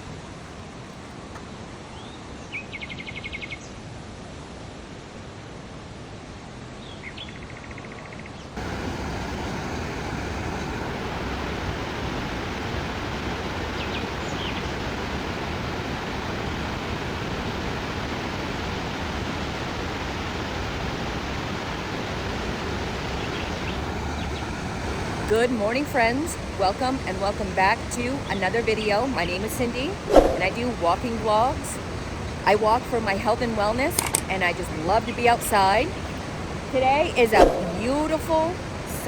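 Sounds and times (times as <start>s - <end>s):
outdoor rushing noise: 29.9s - 30.9s, 37.2s - 38.8s
faint bird chirps: 37.4s - 38.2s.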